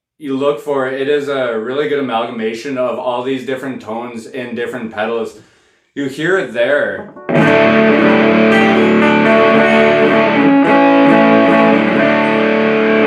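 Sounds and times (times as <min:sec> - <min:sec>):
fuzz distorted electric guitar chords: 0:07.0 - 0:13.0.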